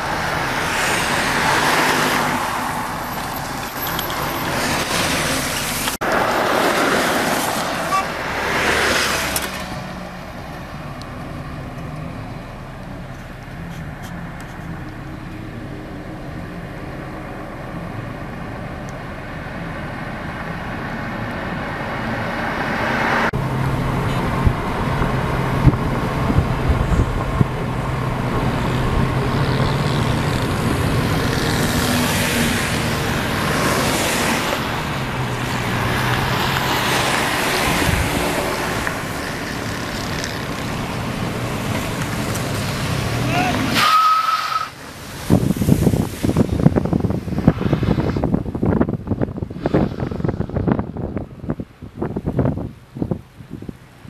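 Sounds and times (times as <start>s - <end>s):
tyre and wind noise: 23.0s - 54.0s.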